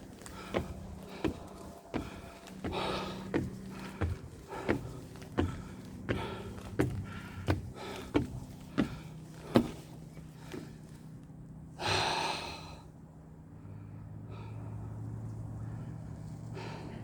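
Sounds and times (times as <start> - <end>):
footsteps on rocky ground: 0.0 - 10.8.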